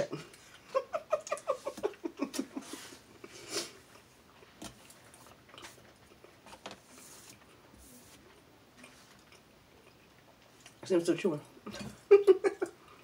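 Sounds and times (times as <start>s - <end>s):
person chewing: 3.1s - 10.8s.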